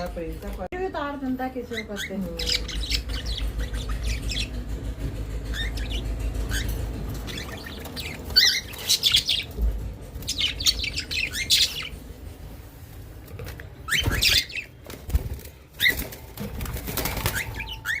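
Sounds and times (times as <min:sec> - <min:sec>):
budgerigars chirping: 0:01.6 - 0:12.0, 0:13.8 - 0:14.8, 0:17.0 - 0:18.0
low hum: 0:02.2 - 0:13.9.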